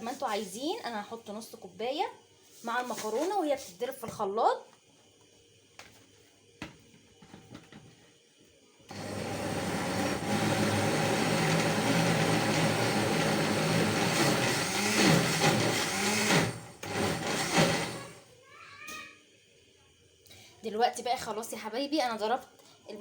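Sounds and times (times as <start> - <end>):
electric blender running: 8.9 - 18.2.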